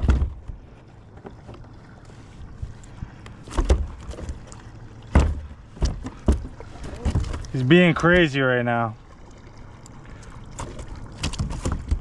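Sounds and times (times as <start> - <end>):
knocks against plastic kayak hull: 5.1 - 7.4.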